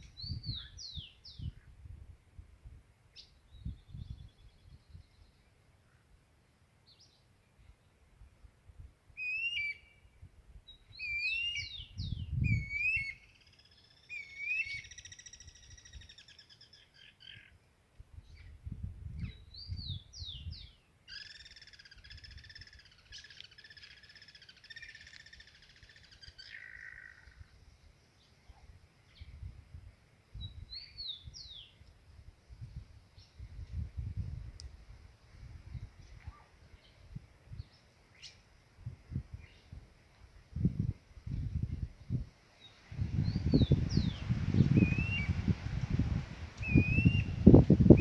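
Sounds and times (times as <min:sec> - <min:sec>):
songbirds singing: 0:00.0 - 0:01.8, 0:03.1 - 0:08.5, 0:09.2 - 0:29.5, 0:30.3 - 0:31.9, 0:35.7 - 0:38.5, 0:39.2 - 0:39.8, 0:41.3 - 0:45.6, 0:46.6 - 0:48.0.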